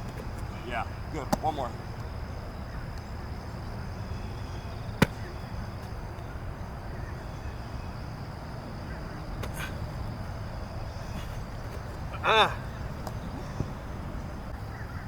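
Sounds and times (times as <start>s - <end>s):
football smacking into hands: 5.0s - 5.9s, 9.4s - 9.8s.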